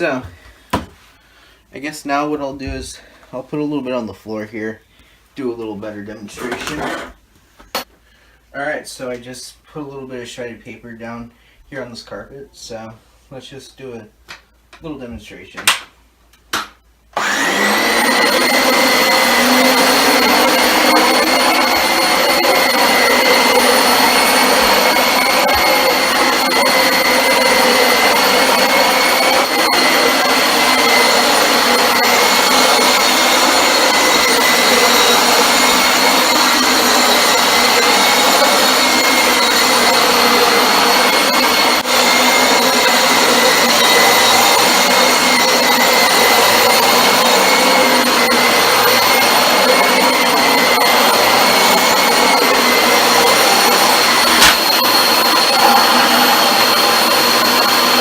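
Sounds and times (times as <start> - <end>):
vacuum cleaner running on carpet: 17.2 - 58.0.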